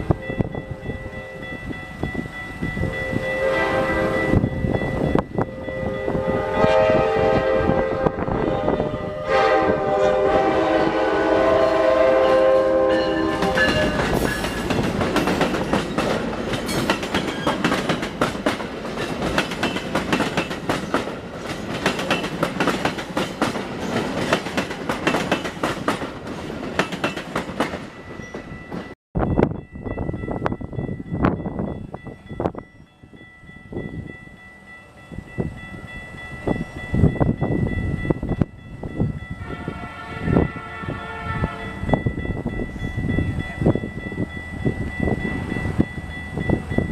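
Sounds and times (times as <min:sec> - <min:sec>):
train horn blasts: 0:02.8 - 0:04.5, 0:05.4 - 0:14.5, 0:39.3 - 0:41.9.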